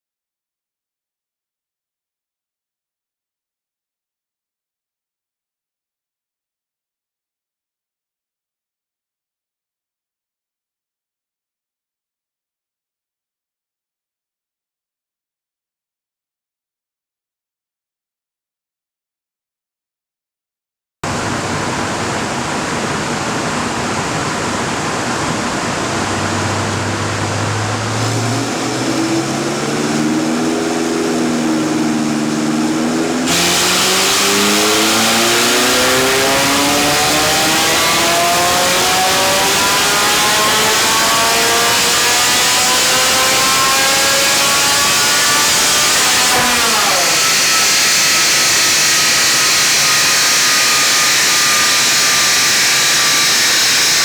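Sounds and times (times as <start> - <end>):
car engine revving on a dyno: 21.1 - 54.0
loud steady rush of noise: 21.1 - 54.0.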